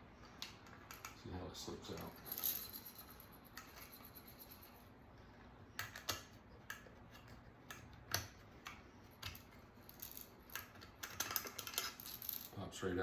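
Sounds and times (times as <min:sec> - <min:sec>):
small metal and plastic clicks: 0:05.8 - 0:12.2.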